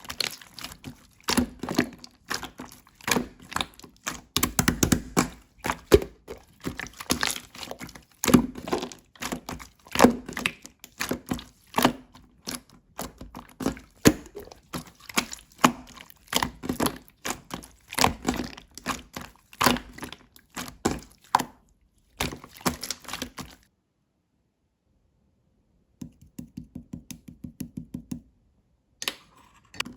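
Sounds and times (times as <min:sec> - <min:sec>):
slime clicking and popping: 0:01.3 - 0:12.0.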